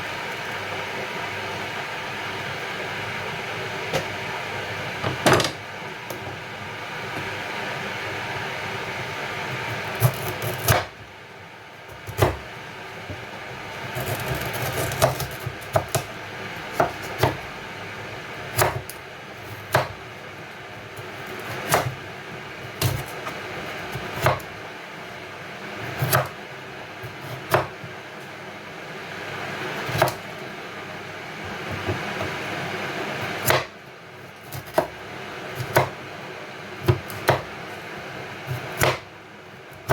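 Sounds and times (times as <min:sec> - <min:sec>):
knife knocking on cutting board: 0:05.0 - 0:05.6
knife cutting pumpkin: 0:13.9 - 0:16.1, 0:38.5 - 0:39.0.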